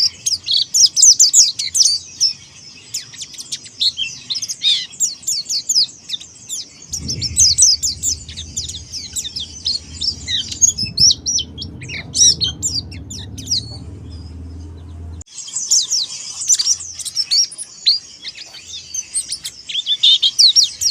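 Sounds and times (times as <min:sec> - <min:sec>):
bird twittering song: 0:06.9 - 0:15.3
low rumble: 0:06.9 - 0:15.3.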